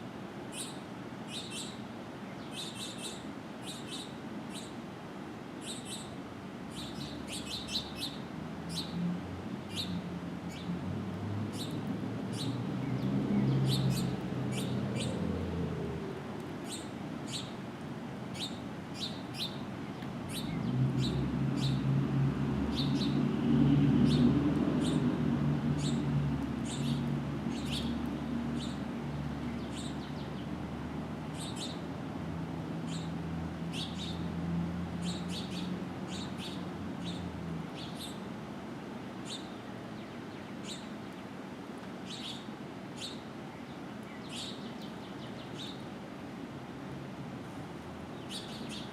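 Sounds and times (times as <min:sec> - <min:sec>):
birds chirping: 0:05.6 - 0:09.0, 0:18.3 - 0:21.8, 0:25.8 - 0:28.8, 0:29.4 - 0:30.6, 0:31.4 - 0:31.8, 0:35.0 - 0:38.3, 0:39.2 - 0:41.3, 0:42.0 - 0:45.9, 0:48.1 - 0:48.9
low engine hum of passing vehicles: 0:06.3 - 0:48.9.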